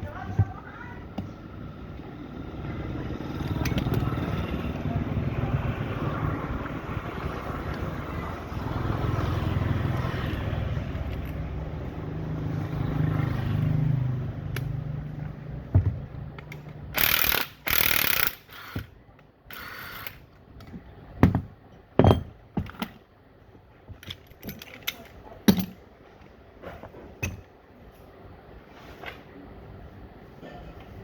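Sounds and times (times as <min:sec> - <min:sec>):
metal tools knocking and clanking: 0:20.6 - 0:23.0, 0:23.9 - 0:25.8, 0:26.8 - 0:27.5.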